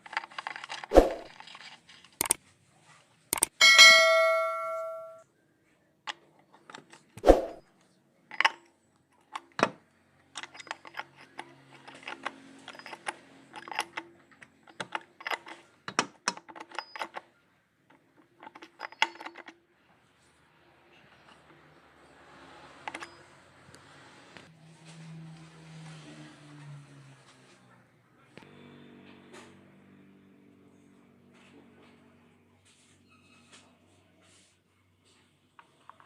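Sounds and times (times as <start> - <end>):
metal tools clinking: 3.4 - 5.2
struck metal ringing: 3.5 - 5.2.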